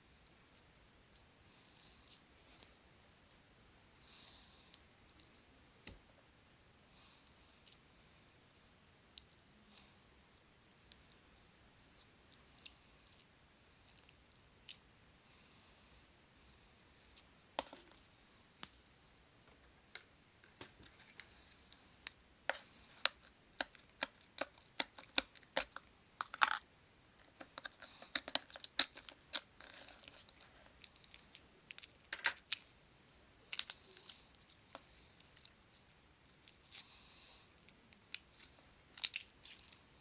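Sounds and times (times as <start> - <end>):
clicks snips and crinkles: 19.5 - 32.8, 33.5 - 39.9.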